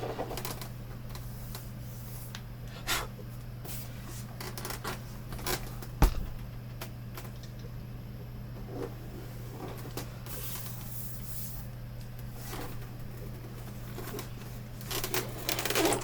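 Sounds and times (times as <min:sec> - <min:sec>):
steady low hum: 0:00.0 - 0:16.0
heavy knock: 0:06.0 - 0:06.4.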